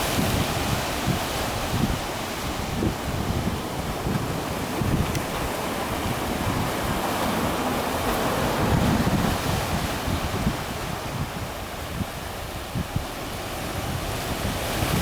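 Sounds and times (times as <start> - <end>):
sea surf washing against concrete: 0.0 - 15.0
wind buffeting microphone: 0.0 - 15.0.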